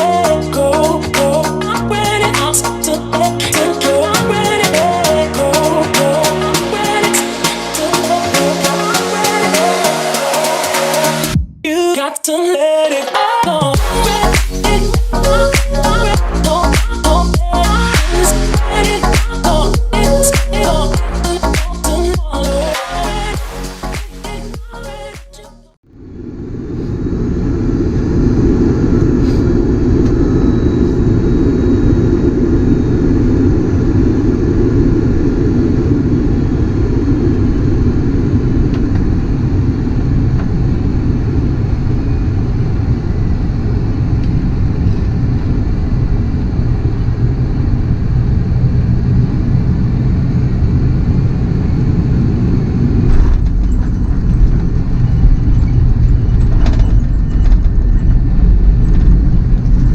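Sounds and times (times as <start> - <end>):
aircraft cabin engine rumble: 25.9 - 59.9.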